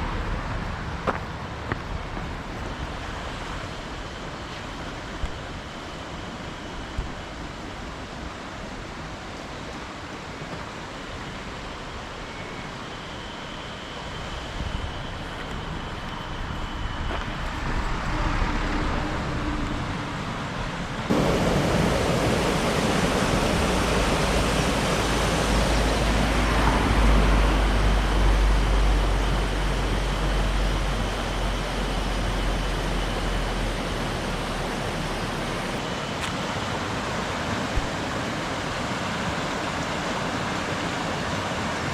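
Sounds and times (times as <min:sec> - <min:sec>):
mountain stream rushing: 0:00.0 - 0:41.9
deep rumble: 0:14.6 - 0:35.8.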